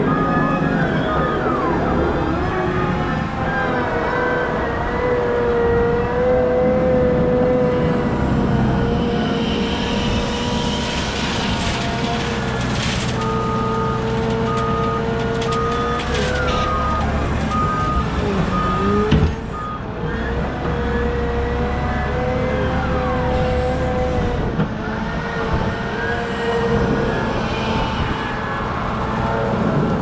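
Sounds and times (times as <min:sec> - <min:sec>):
reversing alarm beeping: 0:00.0 - 0:04.6, 0:13.2 - 0:21.2
heavy diesel machinery running: 0:06.1 - 0:30.0.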